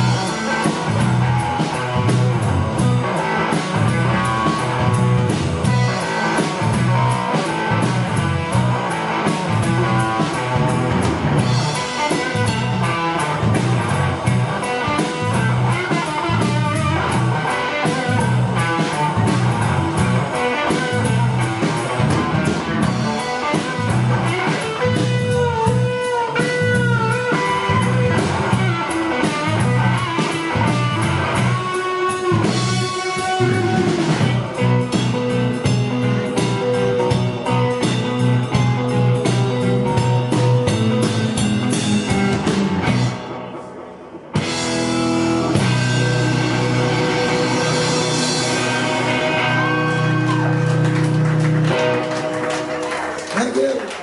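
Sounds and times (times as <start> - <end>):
drum kit: 0.0 - 54.0
electric guitar: 0.0 - 54.0.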